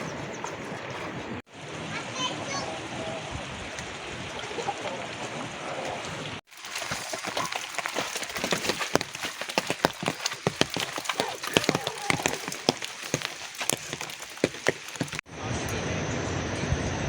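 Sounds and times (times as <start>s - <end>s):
rain drops tapping hard surface: 5.9s - 15.3s.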